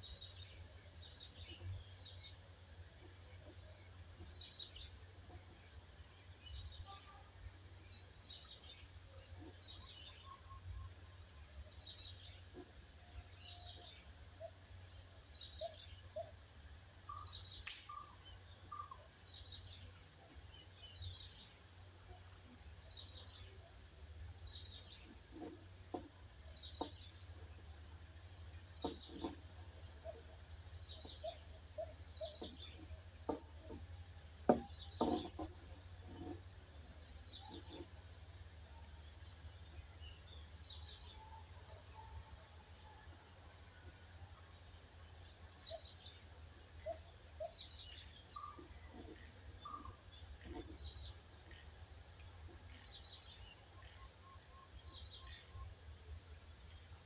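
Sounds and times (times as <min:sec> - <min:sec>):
sharp click: 0:17.6 - 0:18.1
low short knocks: 0:32.3 - 0:36.4.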